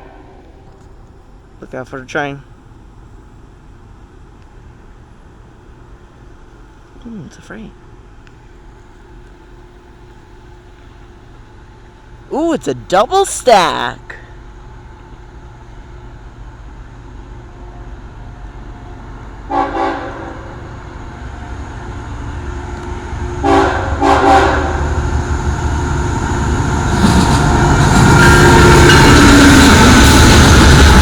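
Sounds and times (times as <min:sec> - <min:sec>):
train horn: 0:00.0 - 0:00.8, 0:19.5 - 0:20.6, 0:23.4 - 0:25.0, 0:27.2 - 0:29.9
train engine and wheels rumbling: 0:00.0 - 0:31.0.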